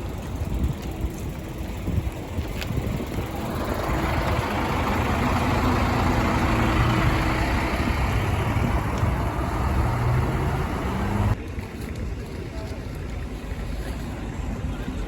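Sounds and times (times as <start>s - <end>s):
bus engine running: 0.0s - 11.4s
road noise: 0.0s - 15.0s.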